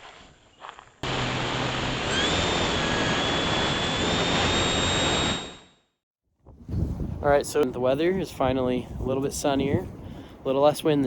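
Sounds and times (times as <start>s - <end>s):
motor whine: 1.0s - 5.9s.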